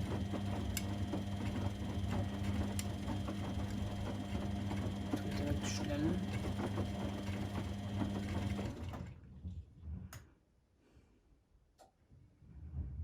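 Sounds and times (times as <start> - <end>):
washing machine motor humming: 0.0 - 9.2.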